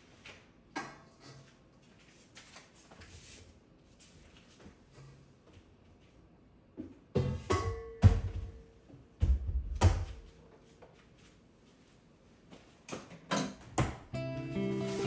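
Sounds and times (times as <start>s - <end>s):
cookware knocking and thudding: 7.2s - 8.6s.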